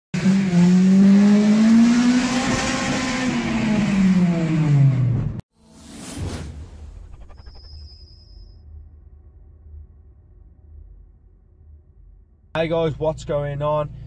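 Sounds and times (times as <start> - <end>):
car engine revving hard: 0.2 - 5.2
whoosh sound effect: 5.6 - 8.5.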